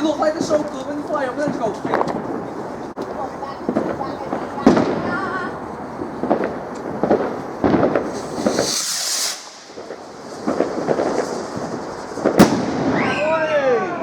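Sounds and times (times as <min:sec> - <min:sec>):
firework hissing rush: 0:00.0 - 0:13.5
fireworks crackling pops: 0:00.0 - 0:13.5
firework sharp bang: 0:03.0 - 0:13.5.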